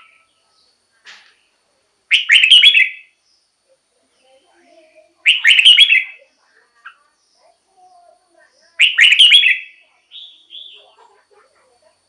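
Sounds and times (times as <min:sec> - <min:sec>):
bird singing warbled notes: 0:02.1 - 0:03.1, 0:05.2 - 0:06.3, 0:08.7 - 0:11.0.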